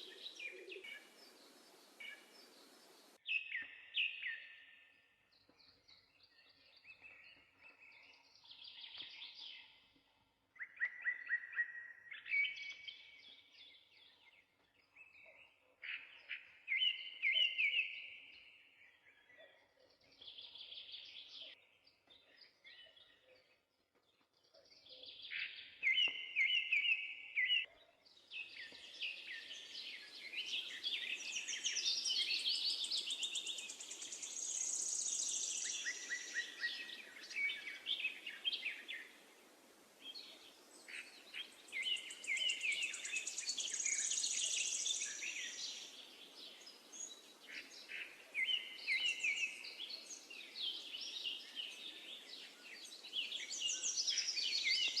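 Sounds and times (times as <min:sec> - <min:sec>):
songbirds singing and chirping: 0:00.0 - 0:55.0.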